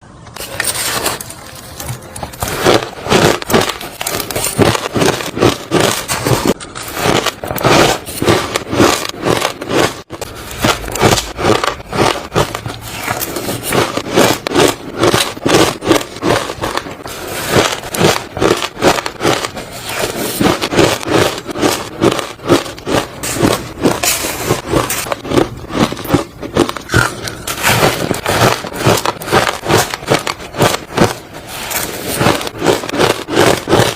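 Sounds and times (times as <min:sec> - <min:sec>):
chewing crunchy ice: 0:00.4 - 0:33.9.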